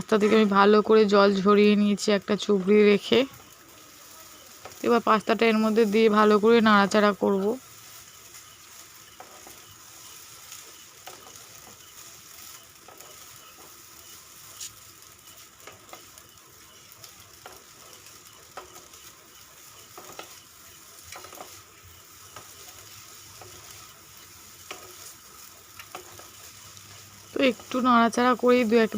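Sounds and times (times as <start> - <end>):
food sizzling in a pan: 0.0 - 28.9
spoon scraping a pan: 7.8 - 16.2, 17.0 - 28.9.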